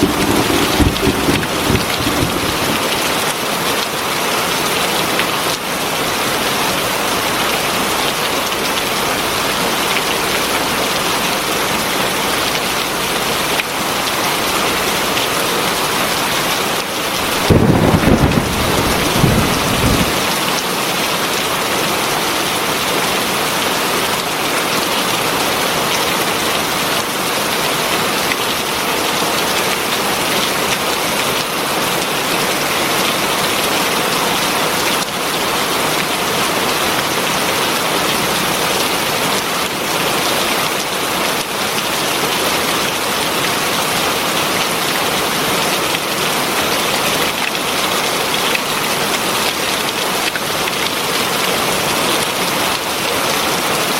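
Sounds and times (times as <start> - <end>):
low thunder rumble: 0.0 - 3.3, 17.2 - 20.3
heavy rain: 0.0 - 53.9.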